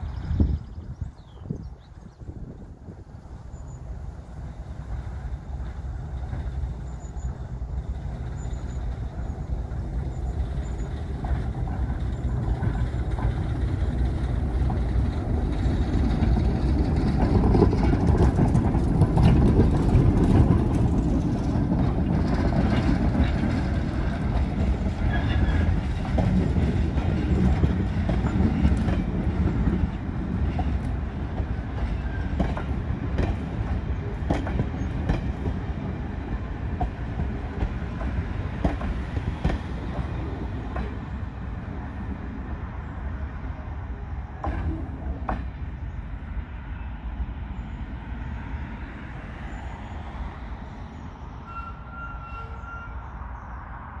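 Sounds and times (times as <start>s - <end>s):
train wheels clicking over rail joints: 4.8s - 42.2s, 44.3s - 45.9s.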